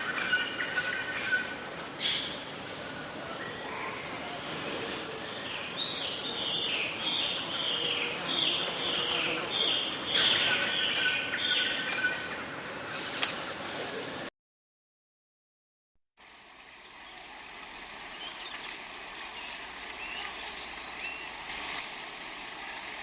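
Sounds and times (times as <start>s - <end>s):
songbird singing: 0.0s - 14.2s, 18.1s - 21.4s
outdoor background noise: 0.0s - 14.3s, 16.2s - 23.0s.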